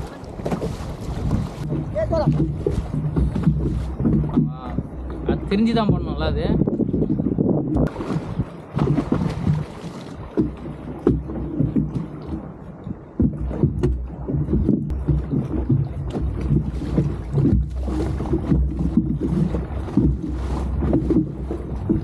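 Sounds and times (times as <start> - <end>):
wind buffeting microphone: 0.0 - 22.0
sharp knocks: 1.6 - 6.2.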